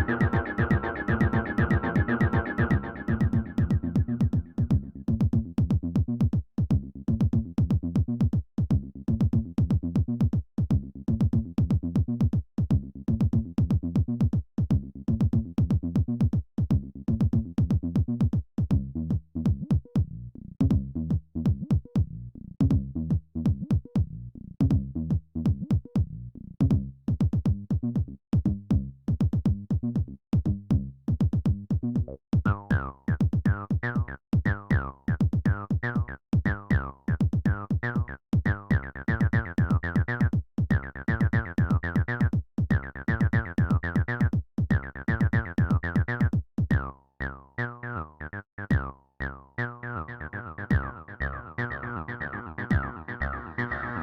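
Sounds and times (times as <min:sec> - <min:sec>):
bright sweeping synth line: 0:00.0 - 0:03.6
low synth bass line: 0:00.0 - 0:05.2, 0:32.5 - 0:54.0
drum machine beat: 0:00.0 - 0:18.8, 0:25.5 - 0:46.9, 0:50.7 - 0:51.0.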